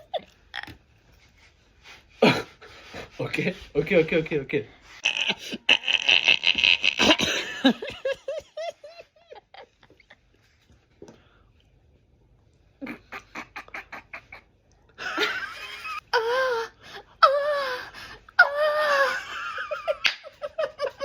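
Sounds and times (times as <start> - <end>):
person laughing: 5.0 - 10.2, 12.8 - 16.4, 18.9 - 21.0.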